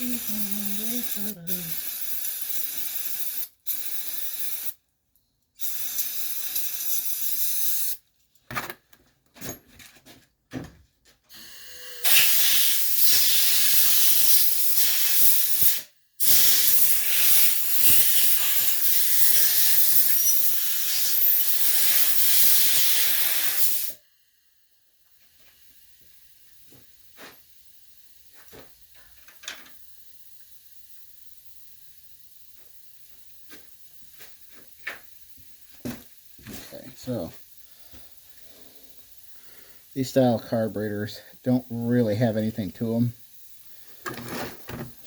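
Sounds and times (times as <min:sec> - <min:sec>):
hissing pressurized spray: 0:00.0 - 0:04.8, 0:11.4 - 0:24.0, 0:34.1 - 0:45.0.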